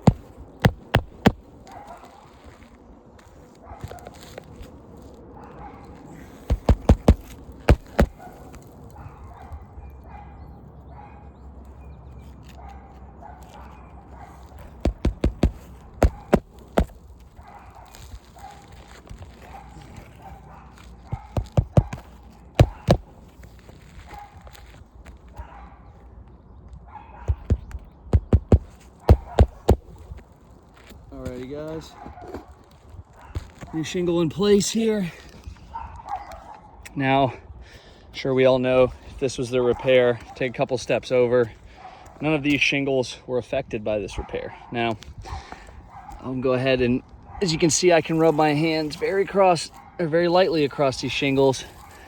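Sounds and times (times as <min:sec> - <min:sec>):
hammer striking nails: 0:00.0 - 0:01.4, 0:06.5 - 0:08.2, 0:14.7 - 0:16.9, 0:21.2 - 0:23.1, 0:27.3 - 0:29.9
dog barking: 0:01.6 - 0:02.4, 0:03.6 - 0:04.2, 0:05.4 - 0:11.4, 0:12.4 - 0:18.7, 0:19.4 - 0:23.0, 0:25.4 - 0:26.0, 0:26.9 - 0:29.8, 0:31.9 - 0:32.6, 0:35.7 - 0:36.8, 0:45.9 - 0:46.2.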